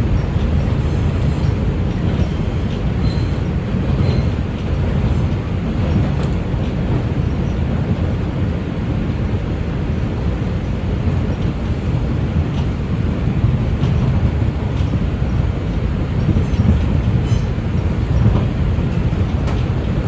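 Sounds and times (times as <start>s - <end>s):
subway train rumbling on track: 0.0s - 20.0s.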